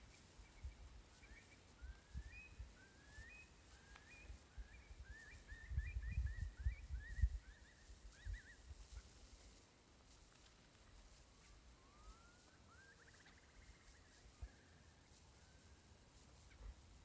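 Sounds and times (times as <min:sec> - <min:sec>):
bird whistling calls: 0:00.1 - 0:09.1, 0:11.4 - 0:14.8.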